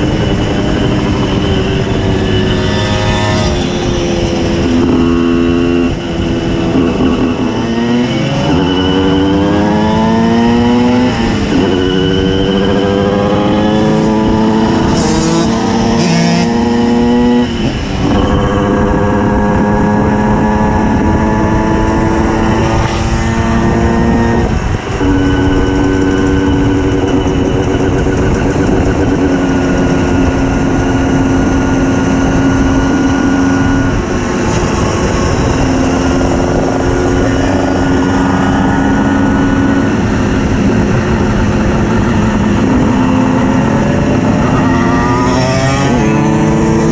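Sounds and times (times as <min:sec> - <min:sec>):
two-stroke moped engine revving: 0:00.0 - 0:46.9.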